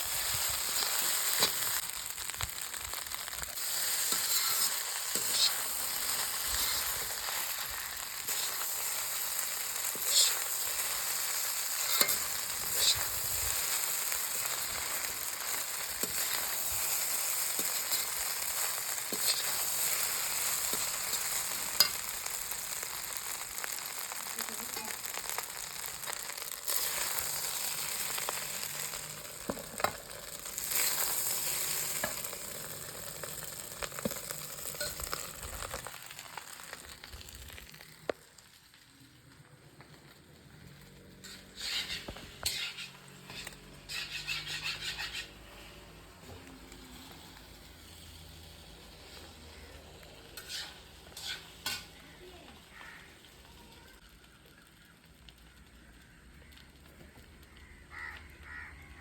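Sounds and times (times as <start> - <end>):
rice sizzling in a pan: 0.0 - 59.0.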